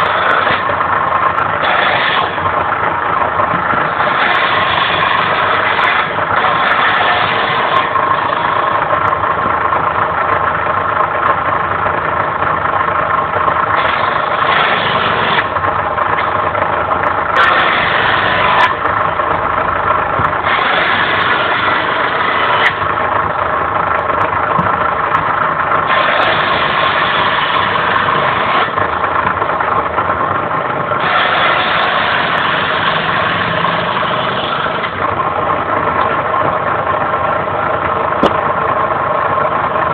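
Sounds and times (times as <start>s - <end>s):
saw blade cutting wood: 0.0s - 0.8s, 1.6s - 2.6s, 3.6s - 8.8s, 13.8s - 15.6s, 17.4s - 18.8s, 20.4s - 23.0s, 25.8s - 29.0s, 31.0s - 35.2s
circular saw running: 0.0s - 39.9s.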